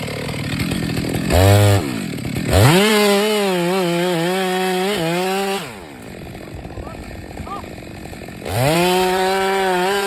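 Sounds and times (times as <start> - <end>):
chainsaw revving: 0.0 - 10.0.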